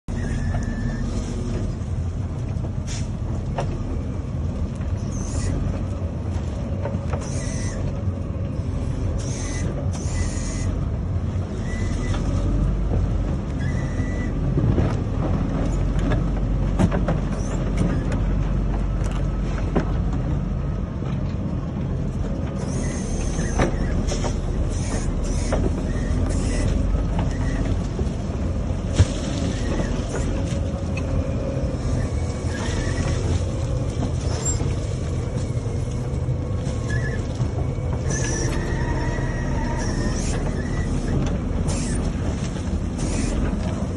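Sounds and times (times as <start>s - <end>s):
diesel engine running: 0.0s - 43.9s
high-pitched squeaks and creaks: 0.1s - 1.8s, 4.8s - 6.0s, 6.6s - 8.1s, 8.8s - 10.9s, 11.5s - 12.8s, 13.5s - 14.5s, 17.3s - 18.4s, 22.6s - 28.2s, 28.8s - 43.9s.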